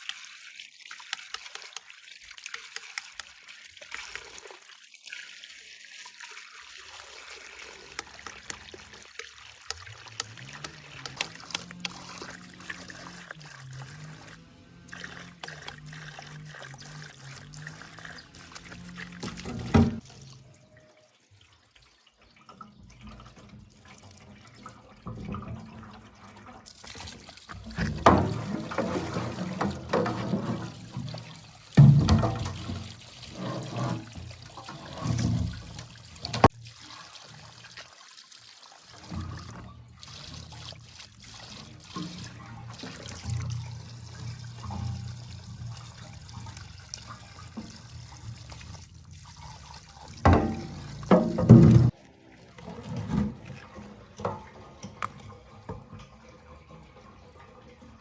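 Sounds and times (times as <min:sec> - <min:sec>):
water trickling and pouring: 0:00.0 - 0:58.0.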